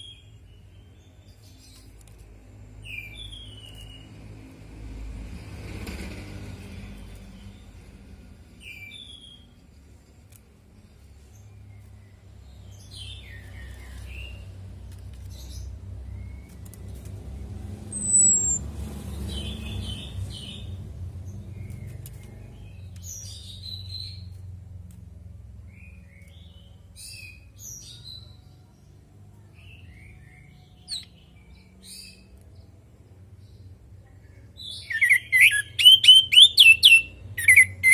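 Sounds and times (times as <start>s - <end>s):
thrush calling: 17.9s - 18.6s.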